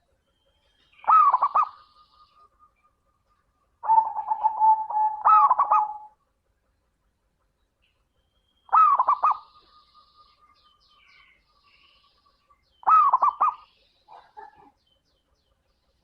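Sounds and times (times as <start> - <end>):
faint bird chirping: 0.0 - 16.0
dove cooing: 1.0 - 2.4, 3.8 - 6.2, 8.7 - 9.5, 12.8 - 14.7.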